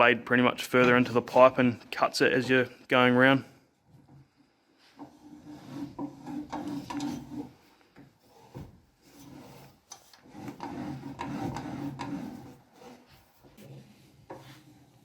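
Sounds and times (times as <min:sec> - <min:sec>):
pipe cutter scraping metal: 0:04.9 - 0:07.6, 0:08.2 - 0:15.0.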